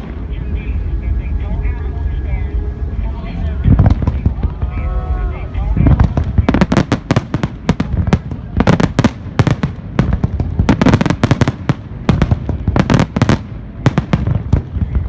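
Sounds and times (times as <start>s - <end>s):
low rumble: 0.0s - 15.0s
fireworks bangs and crackles: 3.6s - 4.9s, 5.5s - 15.0s.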